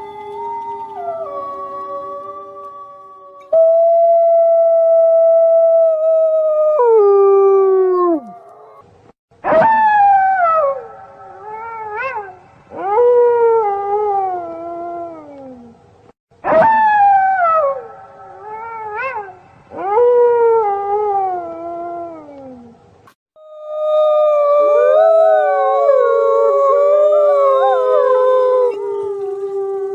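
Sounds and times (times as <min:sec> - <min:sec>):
wolves howling: 0:23.4 - 0:29.9.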